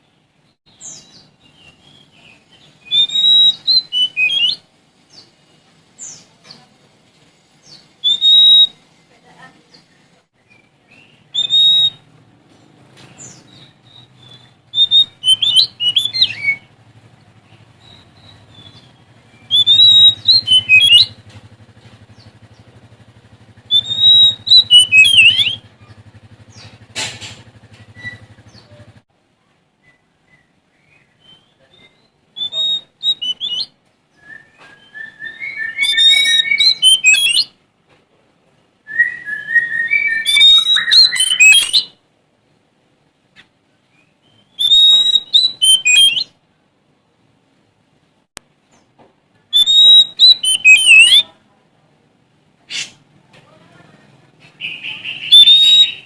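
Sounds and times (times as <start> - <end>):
bird singing whistles and warbles: 0.7 - 6.7, 7.6 - 9.1, 9.7 - 12.2, 13.1 - 26.8, 27.8 - 29.0, 29.8 - 37.6, 38.8 - 42.0, 43.9 - 46.4, 49.5 - 51.4, 54.6 - 56.0.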